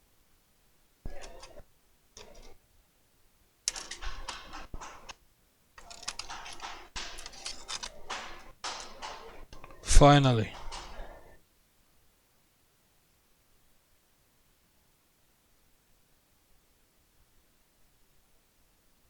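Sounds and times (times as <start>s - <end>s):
laptop keys clicking: 3.7s - 5.2s, 5.8s - 9.8s, 10.5s - 11.3s.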